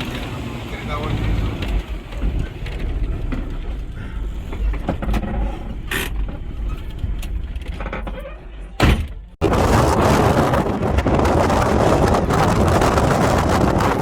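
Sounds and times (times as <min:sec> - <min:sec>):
vehicle engine low rumble: 0:00.0 - 0:14.0
creaks and clicks: 0:01.1 - 0:08.8
wind buffeting microphone: 0:09.4 - 0:14.0.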